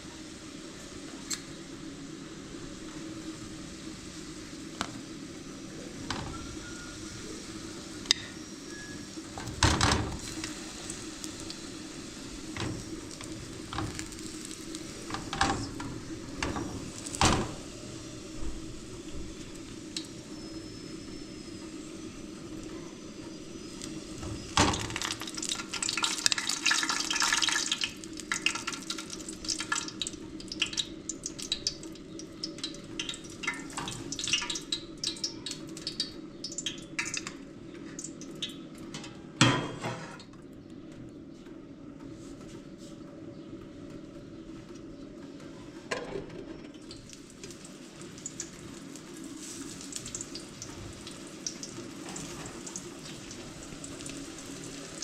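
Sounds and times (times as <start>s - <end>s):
pots and dishes clinking: 38.9s - 40.3s.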